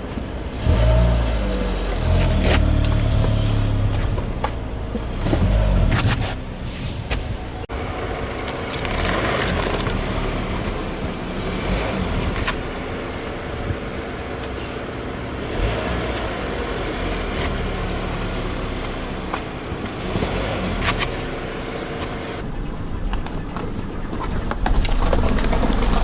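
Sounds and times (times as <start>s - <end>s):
car engine hum: 0.0s - 22.5s
objects cracking under a tyre: 1.8s - 7.3s, 8.1s - 14.6s, 18.6s - 26.0s.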